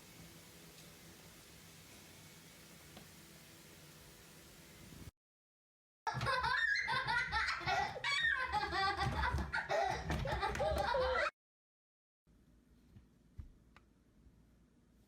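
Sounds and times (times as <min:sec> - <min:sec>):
people laughing: 0:06.1 - 0:11.3.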